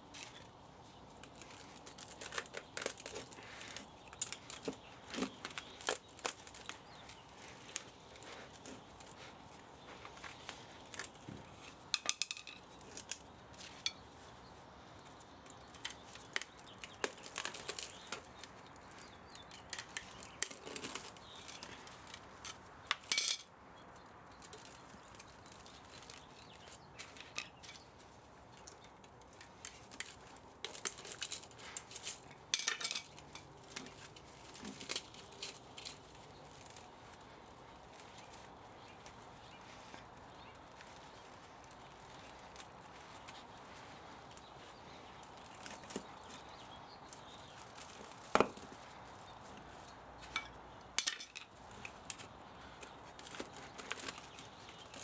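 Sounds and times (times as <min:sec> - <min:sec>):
metal tools clinking and scraping: 0:23.0 - 0:23.5, 0:29.7 - 0:36.8, 0:50.2 - 0:51.9.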